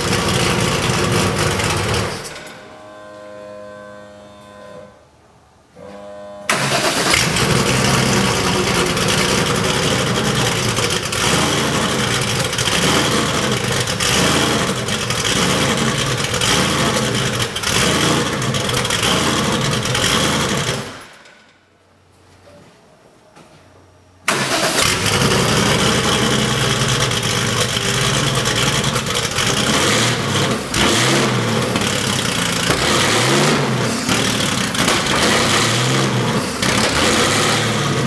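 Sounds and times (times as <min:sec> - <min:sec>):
car engine surging rough idle: 0:00.0 - 0:02.3, 0:06.5 - 0:21.0, 0:24.3 - 0:38.0
starter motor whirring: 0:06.5 - 0:12.6.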